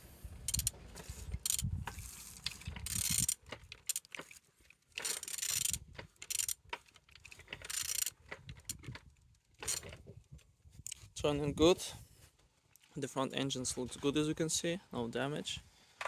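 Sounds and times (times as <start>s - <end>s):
engine turned over by wrench: 0.0s - 10.1s.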